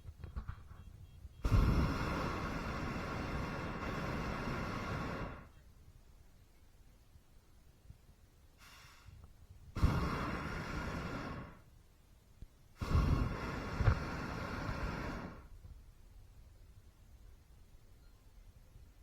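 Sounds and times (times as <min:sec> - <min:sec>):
propane burner blasts: 0:00.0 - 0:05.6, 0:08.5 - 0:11.8, 0:12.7 - 0:15.8.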